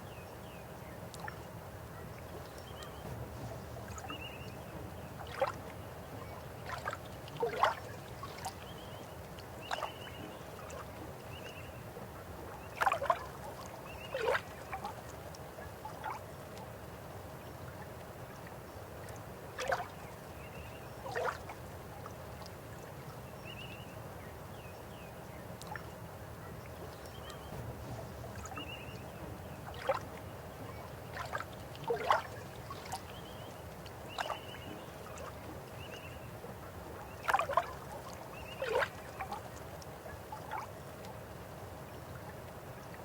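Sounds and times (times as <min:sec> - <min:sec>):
water gurgles and plops: 0:02.5 - 0:11.6, 0:26.8 - 0:41.2.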